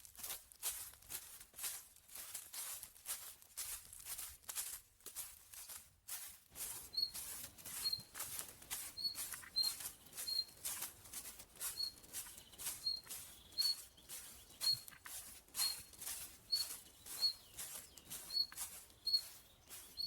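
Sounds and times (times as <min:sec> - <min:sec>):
rustling and scratching: 0:00.0 - 0:20.0
small bird chirping: 0:06.6 - 0:20.0.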